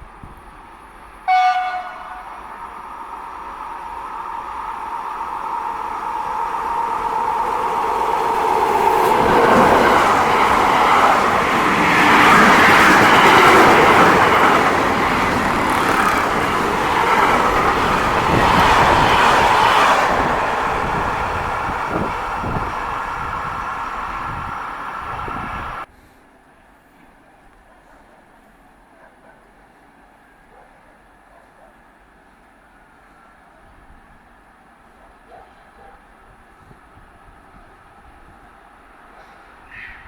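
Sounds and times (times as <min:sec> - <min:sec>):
train passing: 0:00.0 - 0:25.9.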